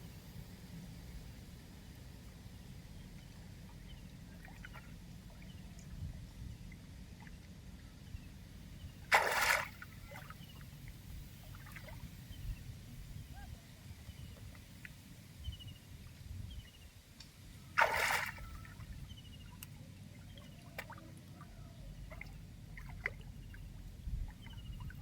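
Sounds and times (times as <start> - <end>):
water sloshing and trickling: 3.6 - 7.6, 8.9 - 13.0, 17.6 - 25.0
loud water splash: 9.1 - 9.8, 17.8 - 18.5.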